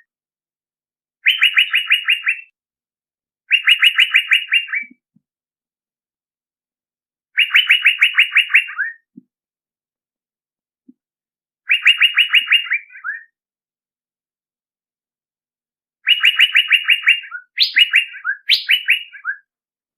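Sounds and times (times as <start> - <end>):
bird calling sharp repeated notes: 1.2 - 2.6, 3.5 - 5.0, 7.3 - 9.2, 11.6 - 13.4, 16.0 - 19.6.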